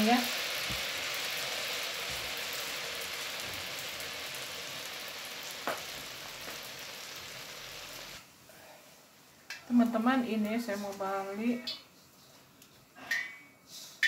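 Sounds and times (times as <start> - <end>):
batter sizzling in hot oil: 0.0 - 8.3.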